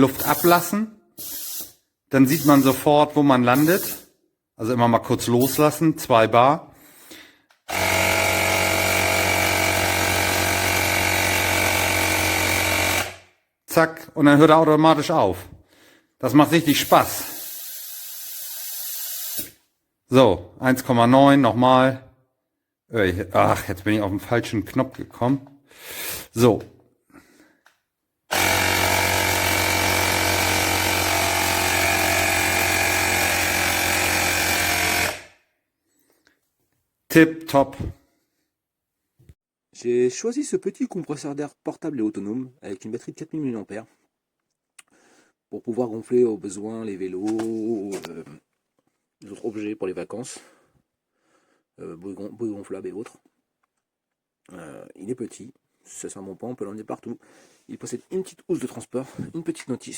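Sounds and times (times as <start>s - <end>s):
electric tyre pump motor humming: 7.7s - 13.2s, 28.3s - 35.3s.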